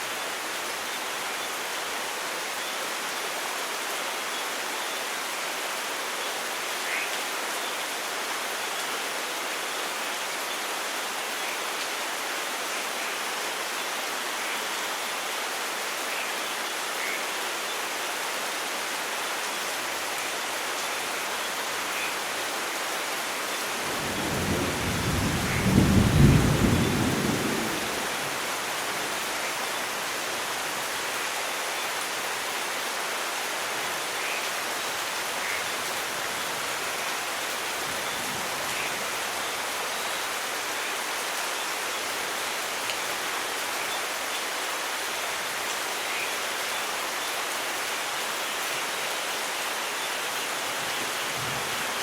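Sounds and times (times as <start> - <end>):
heavy rain: 0.0 - 52.0
rolling thunderclap: 24.1 - 28.1.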